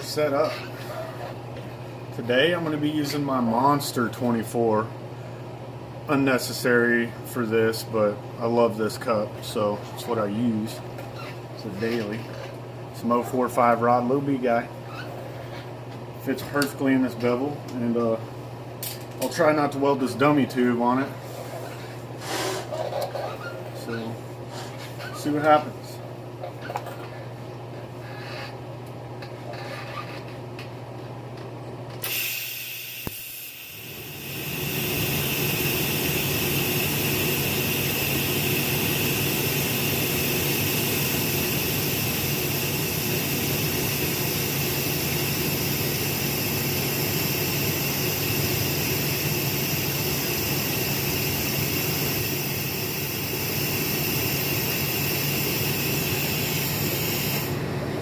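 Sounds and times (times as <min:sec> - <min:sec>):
welding arc hissing and buzzing: 0:32.0 - 0:57.6.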